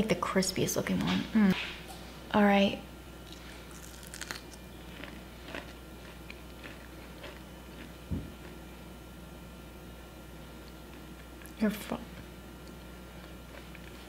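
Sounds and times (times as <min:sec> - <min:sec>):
chewing crispy fried chicken: 0:03.2 - 0:08.6, 0:12.6 - 0:14.0.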